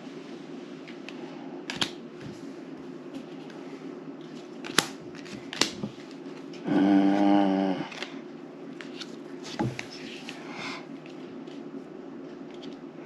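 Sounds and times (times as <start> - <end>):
steady low hum: 0.0 - 13.0
playing cards snapping on table: 4.6 - 5.9.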